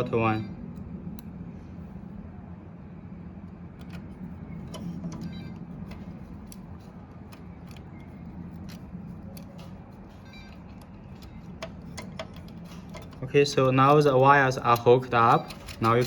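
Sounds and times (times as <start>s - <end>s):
steady low hum: 0.0s - 16.0s
screwdriver and small parts clicking: 3.8s - 16.0s.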